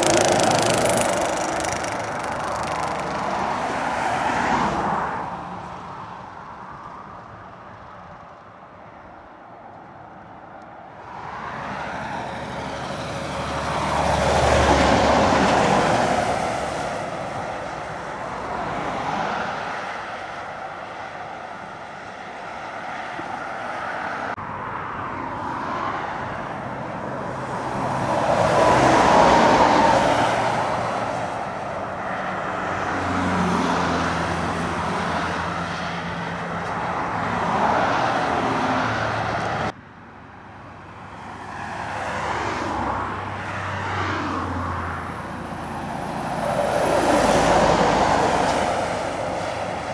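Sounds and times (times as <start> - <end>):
tyre noise: 0.0 - 4.6
lorry diesel engines pulling hard: 0.0 - 8.3, 10.9 - 39.8, 40.6 - 49.9.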